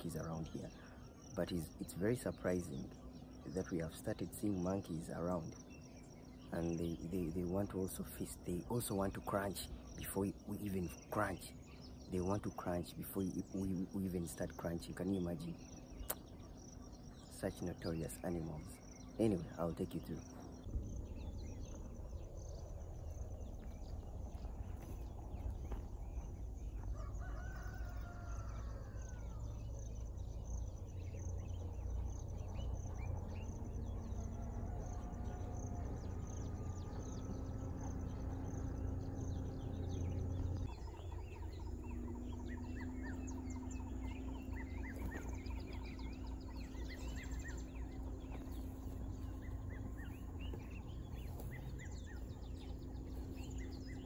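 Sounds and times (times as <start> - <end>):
birds chirping and calling: 0.0 - 54.0
steady low hum: 0.0 - 54.0
low rumble: 20.2 - 54.0.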